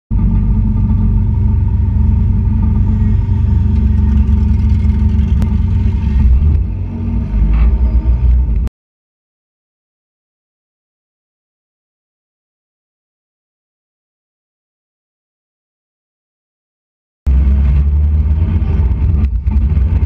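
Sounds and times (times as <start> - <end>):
race car engine idling: 0.1 - 7.5.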